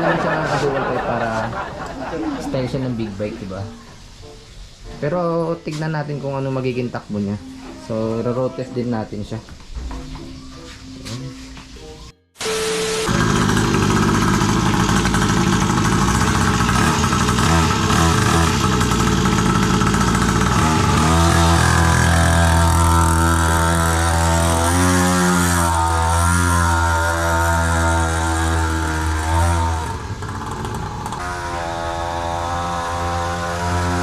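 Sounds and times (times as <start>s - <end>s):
two-stroke mini bike engine: 12.5s - 34.0s.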